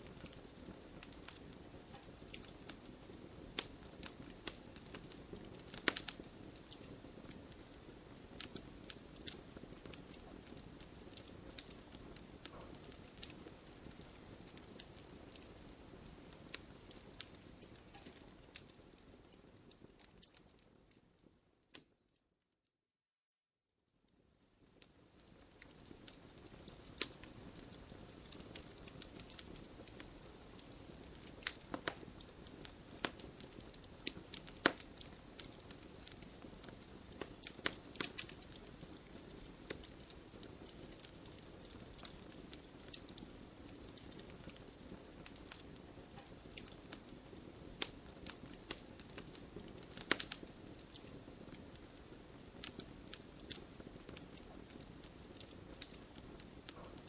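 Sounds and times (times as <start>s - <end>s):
wood fire pops and crackles: 0.0s - 22.0s, 24.1s - 57.0s.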